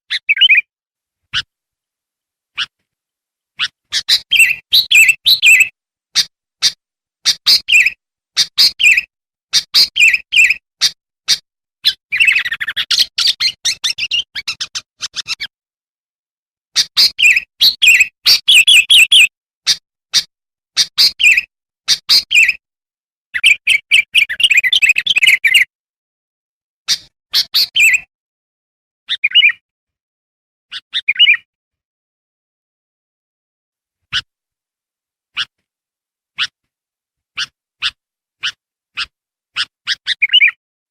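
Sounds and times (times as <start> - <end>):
bird chirping: 0.1 - 0.7, 3.6 - 15.5, 16.8 - 22.6, 23.4 - 25.7, 26.9 - 28.1, 29.1 - 29.6, 30.7 - 31.5, 36.4 - 36.6, 37.4 - 40.6
bird fast chattering: 3.6 - 15.5, 16.8 - 22.6, 37.4 - 40.5.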